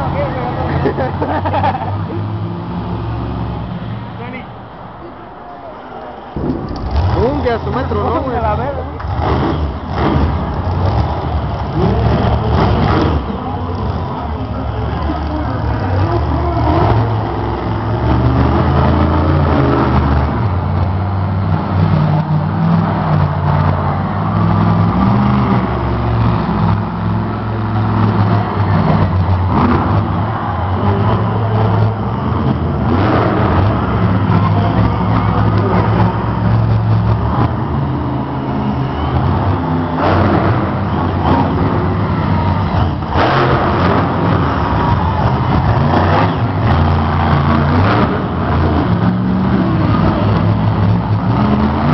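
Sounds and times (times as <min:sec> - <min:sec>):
monster truck engines revving: 0:00.0 - 0:51.9.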